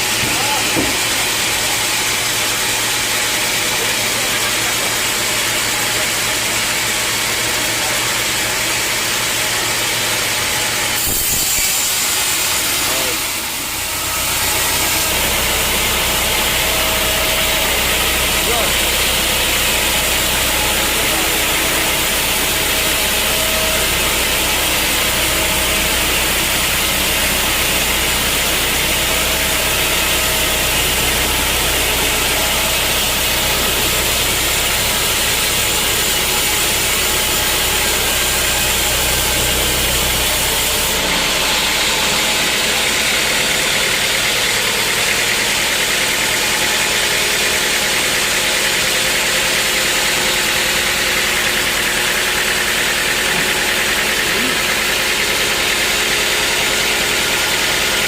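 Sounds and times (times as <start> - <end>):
sawmill engine hum: 0.0 - 58.0
saw hissing and grinding: 9.9 - 43.5.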